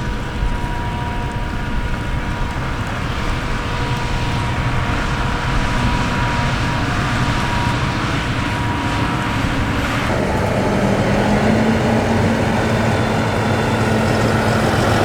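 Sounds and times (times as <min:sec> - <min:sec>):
constant high whine: 0:00.0 - 0:15.0
heavy diesel machinery rumbling: 0:00.0 - 0:15.0.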